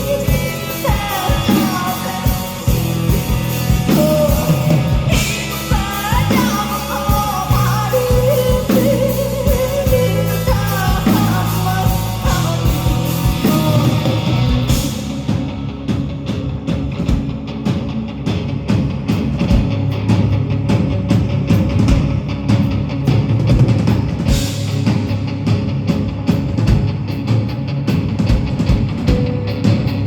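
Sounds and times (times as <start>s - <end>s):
woman singing: 0.0s - 15.0s
bass guitar: 0.0s - 30.0s
drums: 0.0s - 30.0s
electric guitar: 0.0s - 30.0s.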